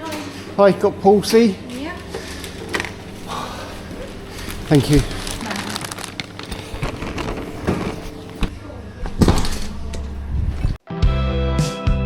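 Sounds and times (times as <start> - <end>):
indistinct voices: 0.0 - 10.8
low rumble: 8.4 - 10.8.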